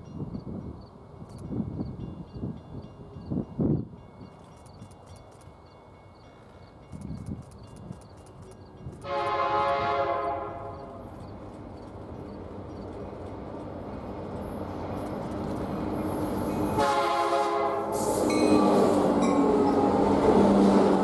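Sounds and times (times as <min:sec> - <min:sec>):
approaching train running noise: 0:00.0 - 0:21.0
locomotive horn blast: 0:09.0 - 0:11.2, 0:16.0 - 0:21.0.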